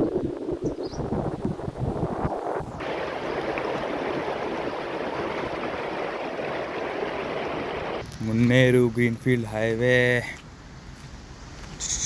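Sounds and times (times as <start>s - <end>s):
wind buffeting microphone: 0.0s - 8.0s
river water rushing: 2.8s - 8.0s.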